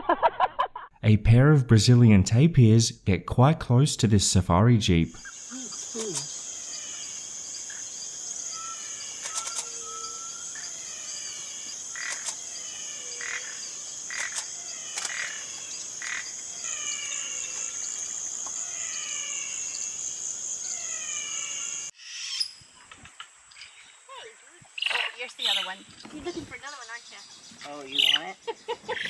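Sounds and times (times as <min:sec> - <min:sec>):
high-pitched insect drone: 0:05.3 - 0:22.5
sharp clicks: 0:05.9 - 0:06.3, 0:09.2 - 0:09.8, 0:12.0 - 0:12.4, 0:14.1 - 0:15.3.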